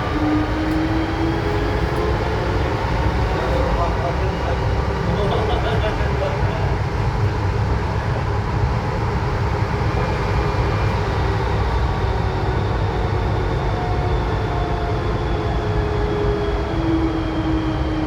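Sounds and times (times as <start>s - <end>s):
metro car running gear rumble: 0.0s - 14.0s.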